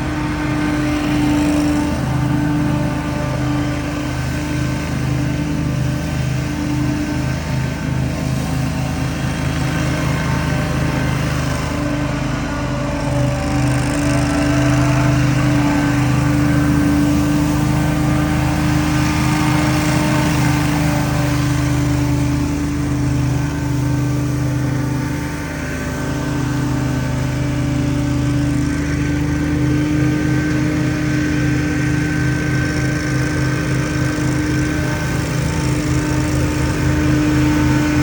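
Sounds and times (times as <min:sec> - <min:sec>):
small gas engine running: 0:00.0 - 0:38.0.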